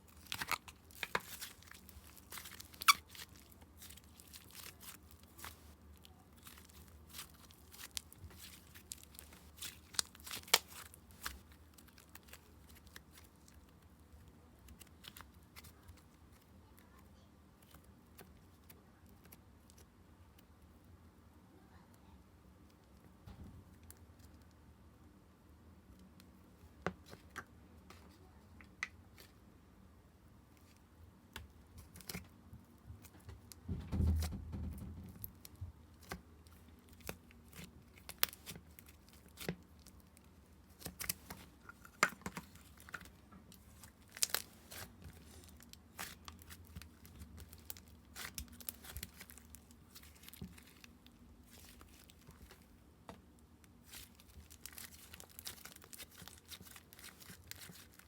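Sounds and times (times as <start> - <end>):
plastic packaging crinkling and tearing: 0.0 - 16.4, 35.2 - 52.8, 53.6 - 58.0.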